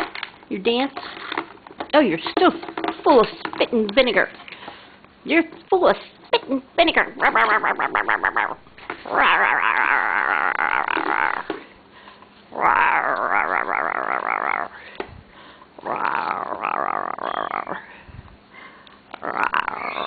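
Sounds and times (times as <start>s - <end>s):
parrot warbling calls: 7.0s - 11.4s.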